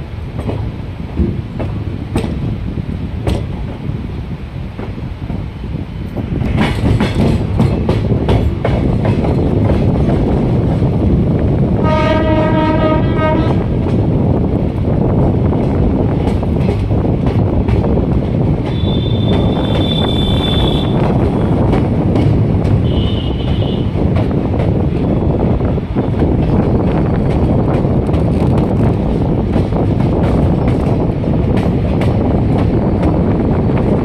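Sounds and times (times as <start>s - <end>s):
train rumbling: 0.0s - 34.0s
wheels clacking over rail joints: 3.2s - 3.8s, 6.4s - 10.8s, 15.2s - 25.4s
train horn: 11.8s - 13.8s, 18.7s - 21.0s, 22.8s - 24.0s.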